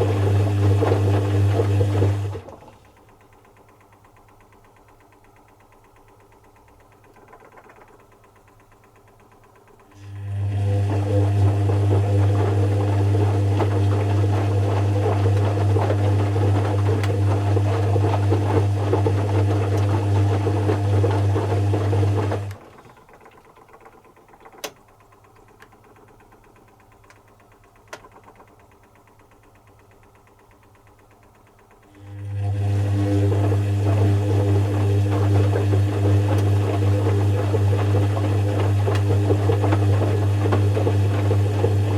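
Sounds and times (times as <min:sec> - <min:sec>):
washing machine drum tumbling: 0:33.3 - 0:41.9.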